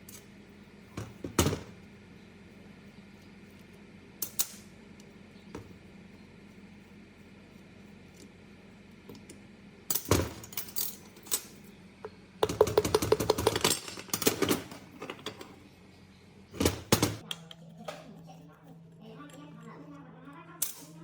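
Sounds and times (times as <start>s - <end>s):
small metal parts clinking: 9.9s - 11.6s.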